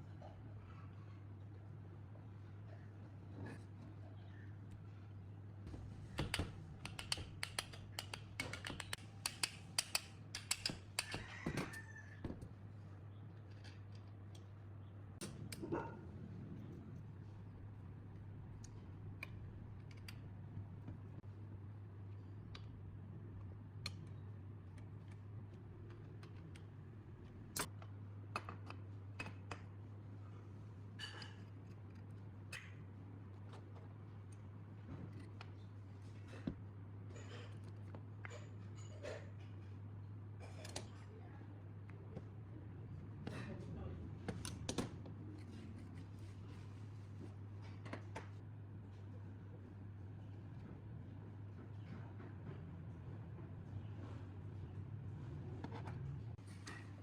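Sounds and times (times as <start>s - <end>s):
light clicks and taps of tools: 6.2s - 11.8s, 13.4s - 14.6s
steady low hum: 12.4s - 57.0s.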